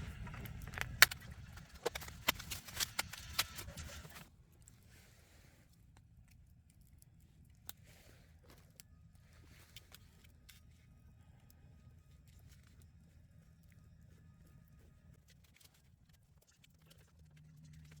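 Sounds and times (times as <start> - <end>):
low rumble: 0.0 - 4.3.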